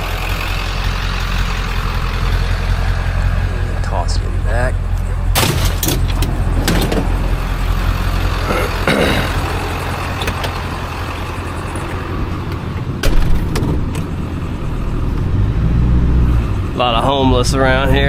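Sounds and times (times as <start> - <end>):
vehicle engine running: 0.0 - 18.0
sharp knocks and clanks: 5.3 - 10.9, 11.8 - 14.1.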